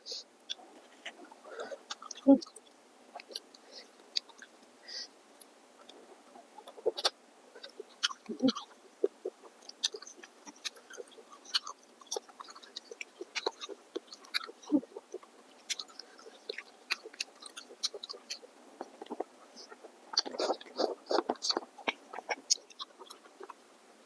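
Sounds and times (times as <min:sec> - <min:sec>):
chewing noodles: 0:06.6 - 0:23.6
wet mouth clicks and smacks: 0:06.7 - 0:23.6.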